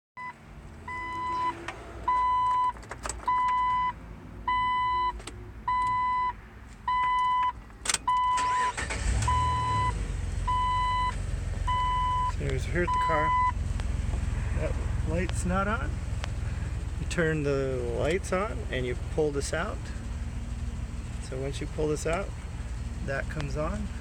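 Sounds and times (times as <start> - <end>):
car electronic warning chime: 0.2 - 13.6
low rumble: 9.2 - 19.1.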